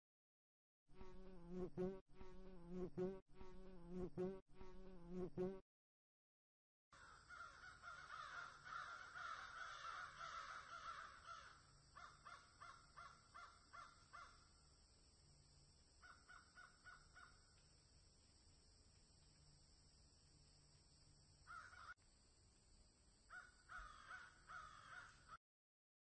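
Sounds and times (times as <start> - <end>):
faint bird calls: 7.0 - 14.5, 16.0 - 17.6, 21.4 - 22.0, 23.3 - 25.4.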